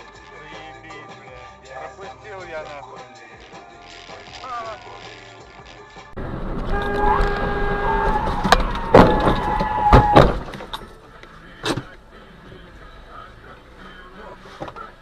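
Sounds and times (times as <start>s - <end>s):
car crash impacts: 6.2s - 11.0s, 11.6s - 12.0s
car horn: 6.5s - 10.5s.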